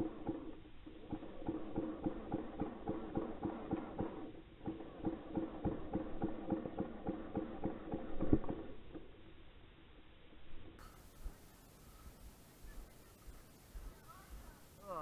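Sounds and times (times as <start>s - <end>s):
running footsteps: 10.8s - 15.0s.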